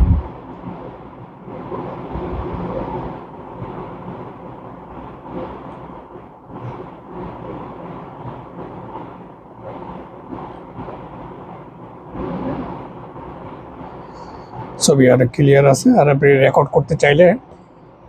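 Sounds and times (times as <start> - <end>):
steady background rumble: 0.0 - 18.0.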